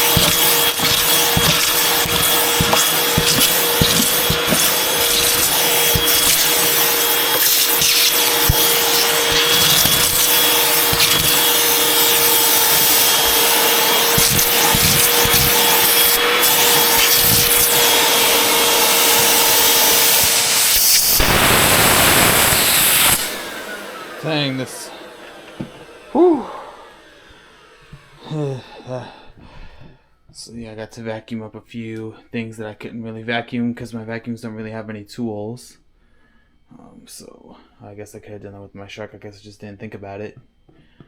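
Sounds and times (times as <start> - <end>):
vacuum cleaner running: 0.0 - 29.2.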